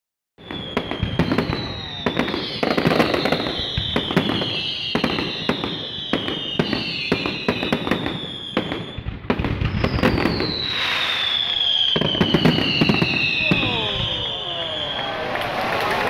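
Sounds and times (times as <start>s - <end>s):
fireworks bangs: 0.4s - 16.0s
falling whistling tones: 9.8s - 15.6s.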